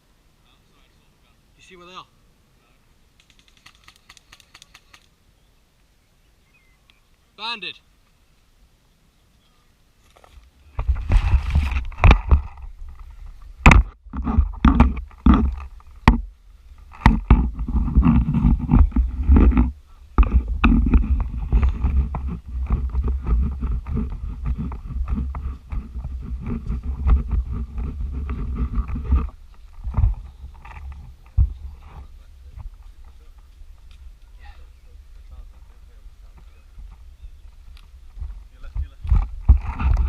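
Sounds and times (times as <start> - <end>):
low rumbling and scraping: 10.7 - 40.0
sharp knocks: 13.6 - 16.3, 16.9 - 25.8.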